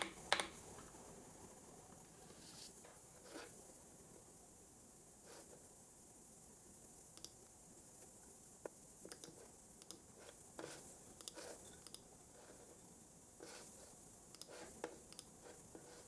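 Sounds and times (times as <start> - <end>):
keyboard and mouse clicks: 0.0 - 0.6, 9.1 - 10.0
faint steady hiss: 0.0 - 16.0.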